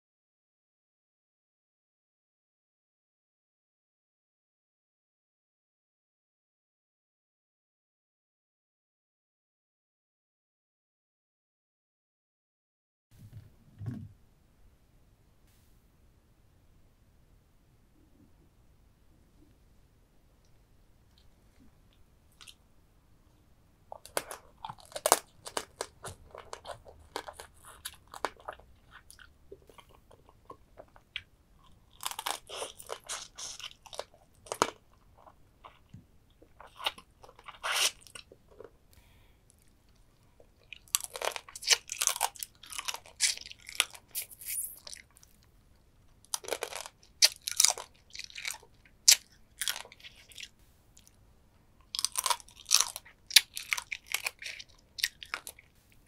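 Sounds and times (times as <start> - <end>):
crunching and chewing crab shell: 23.9 - 38.7, 39.5 - 45.5, 46.1 - 51.2, 51.8 - 55.7.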